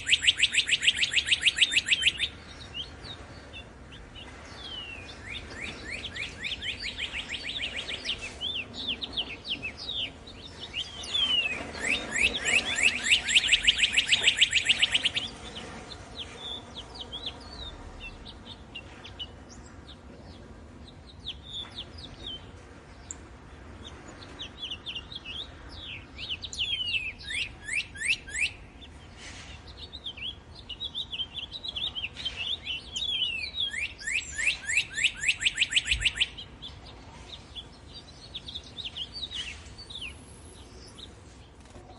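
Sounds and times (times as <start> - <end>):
cardinal singing whistled notes: 0.0 - 2.9, 4.6 - 15.6, 24.7 - 28.7, 30.1 - 36.5
bird chirps: 0.0 - 41.9.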